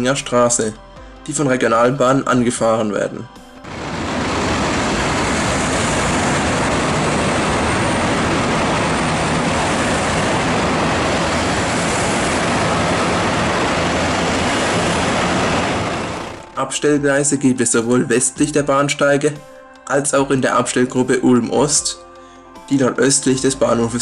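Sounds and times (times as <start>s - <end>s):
train running: 3.6s - 16.7s.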